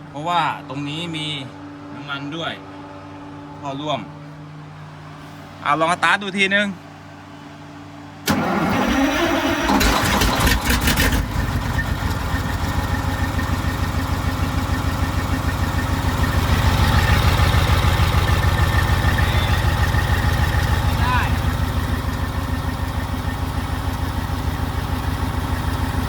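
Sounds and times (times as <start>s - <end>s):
diesel engine idling: 8.2s - 26.0s
diesel engine starter cranking: 8.2s - 26.0s.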